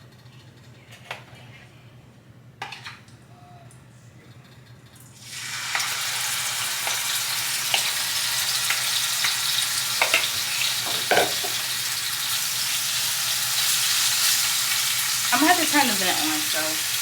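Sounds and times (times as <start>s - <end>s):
chicken sizzling in hot oil: 5.2s - 17.0s
utensil knocking on pan: 10.0s - 11.6s.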